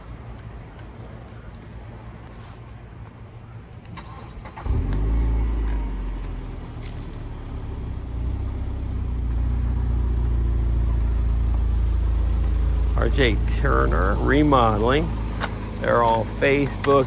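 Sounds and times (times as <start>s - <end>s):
vehicle engine starting and running: 3.8s - 17.0s.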